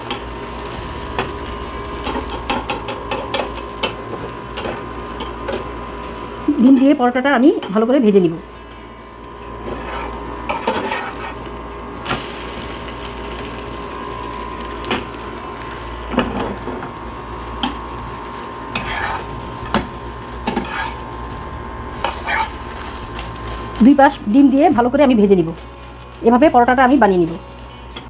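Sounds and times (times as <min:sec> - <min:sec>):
flatbread sizzling on a griddle: 0:00.0 - 0:28.0
spatula scraping and tapping pan: 0:09.6 - 0:11.4, 0:18.7 - 0:21.0.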